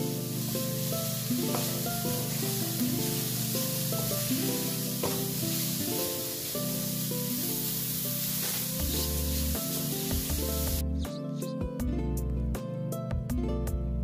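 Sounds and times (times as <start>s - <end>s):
spinach sizzling in a pan: 0.0s - 10.8s
background music: 0.0s - 14.0s.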